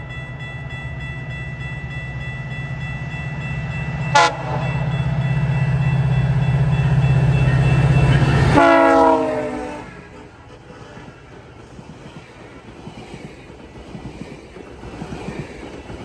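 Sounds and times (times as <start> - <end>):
train rumbling: 0.0 - 16.0
train horn: 4.1 - 5.1, 6.9 - 10.1.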